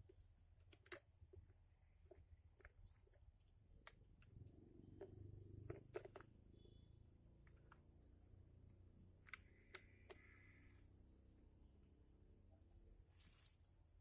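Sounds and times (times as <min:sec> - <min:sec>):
faint clicks: 0:08.7 - 0:10.9.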